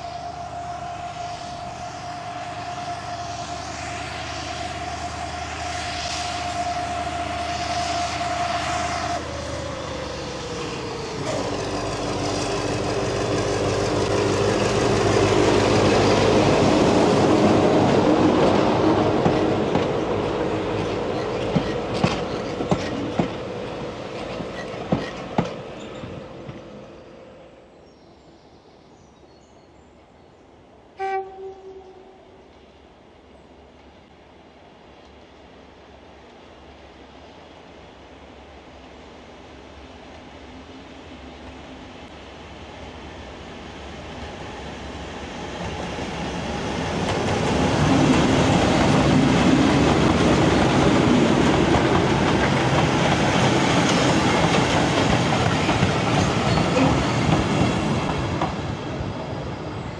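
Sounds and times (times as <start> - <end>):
diesel locomotive engine whine: 0.0 - 29.0, 30.0 - 59.9
wheels clicking over rail joints: 19.2 - 26.7, 46.9 - 58.7.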